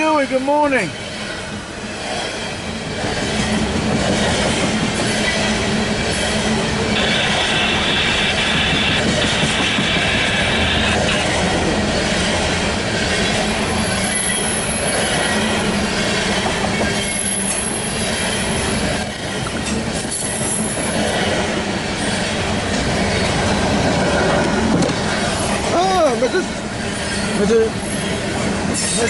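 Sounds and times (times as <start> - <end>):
train wheels rumbling on rails: 0.0 - 29.0
high wheel squeal: 13.1 - 15.7, 16.7 - 18.8.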